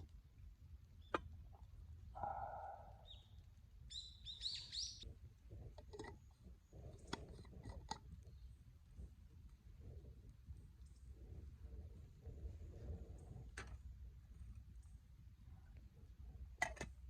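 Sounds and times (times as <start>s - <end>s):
bird chirping: 2.2s - 5.0s.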